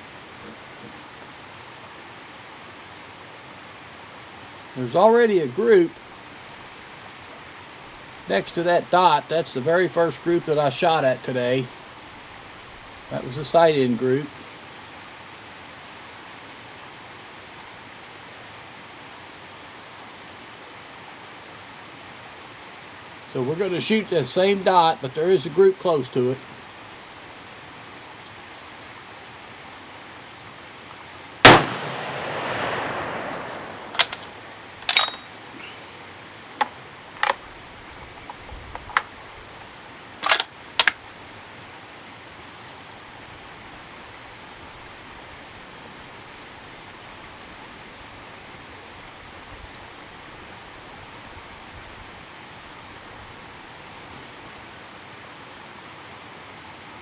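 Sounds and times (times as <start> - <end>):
faint background hiss: 0.0 - 57.0
rifle shot with echo: 31.4 - 35.2
rifle bolt metallic clicks: 33.3 - 35.3, 36.6 - 37.4, 38.0 - 39.1, 40.2 - 41.0.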